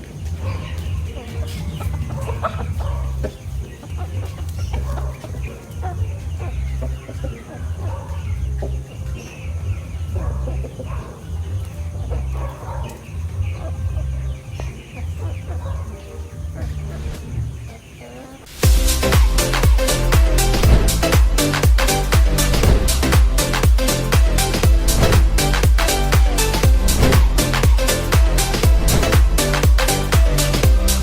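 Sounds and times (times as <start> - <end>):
chickens clucking: 0.0 - 31.0
low repeating throb: 18.6 - 31.0.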